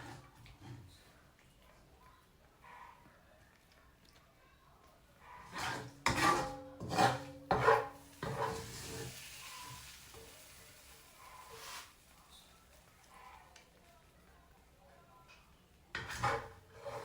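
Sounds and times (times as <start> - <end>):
utensil scraping cooking pan: 0.0 - 1.1, 5.4 - 13.5, 15.9 - 17.0.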